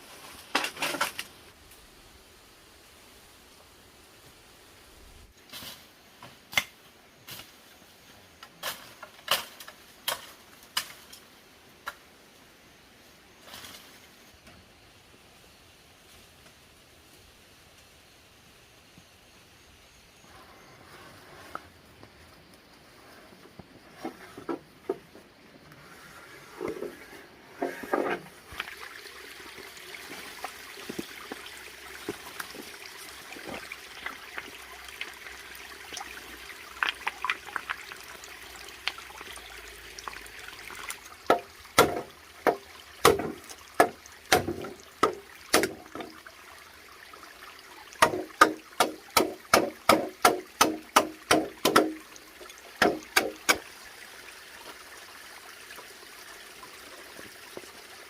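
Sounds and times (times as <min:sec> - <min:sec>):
water trickling: 0:25.8 - 0:58.0
sharp knocks or chops: 0:48.0 - 0:52.0.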